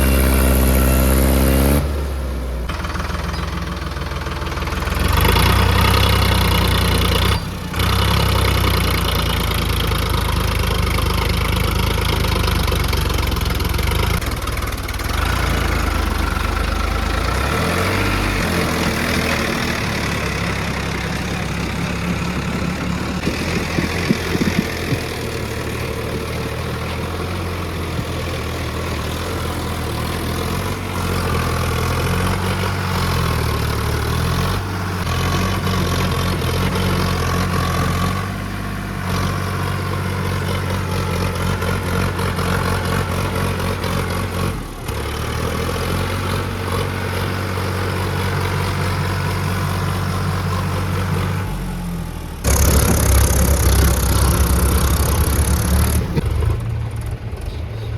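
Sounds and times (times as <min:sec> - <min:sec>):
tractor engine idling: 0:00.0 - 0:57.9.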